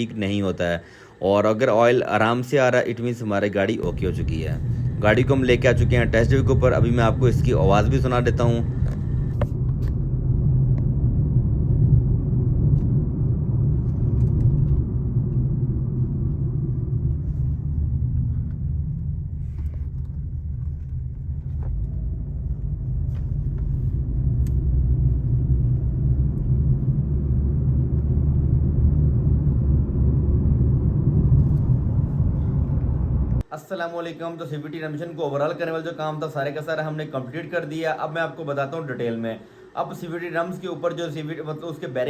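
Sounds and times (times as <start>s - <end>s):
car engine and road noise rumble: 3.8s - 33.5s.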